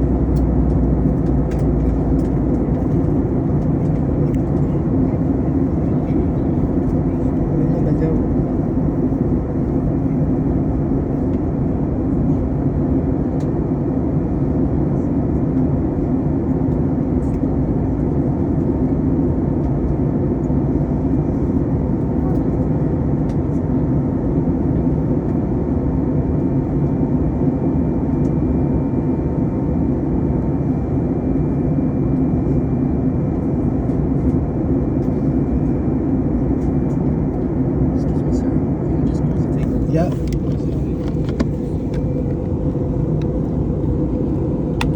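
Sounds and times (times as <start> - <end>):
aircraft cabin rumble: 0.0 - 44.9.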